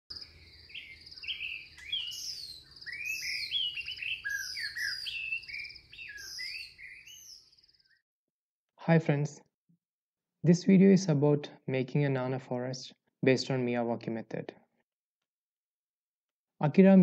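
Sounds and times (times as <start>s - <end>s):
birds chirping and whistling: 0.1s - 8.0s
buzzy bird trill: 0.1s - 8.0s.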